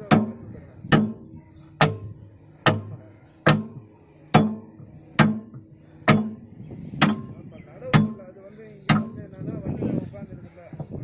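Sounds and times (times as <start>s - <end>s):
hammer striking steel: 0.0s - 8.3s, 8.9s - 9.3s.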